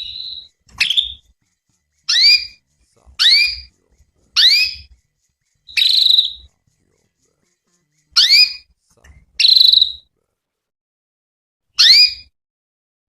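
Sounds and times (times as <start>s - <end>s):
canary calling: 0.0s - 8.8s, 9.4s - 10.1s, 11.8s - 12.3s.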